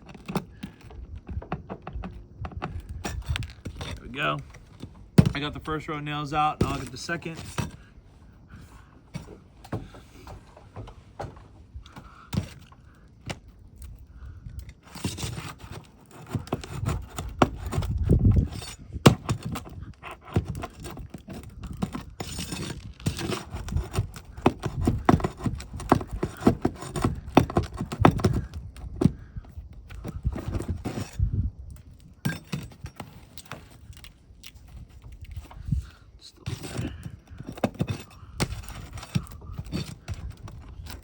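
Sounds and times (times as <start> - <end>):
scraping against shingle: 0.0 - 41.0
flat bar prying nails from shingles: 6.6 - 7.9, 14.6 - 31.2, 36.4 - 41.0.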